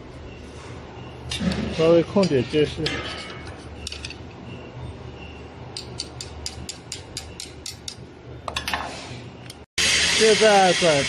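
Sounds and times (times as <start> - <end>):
ratchet wrench clicking: 5.7 - 8.0.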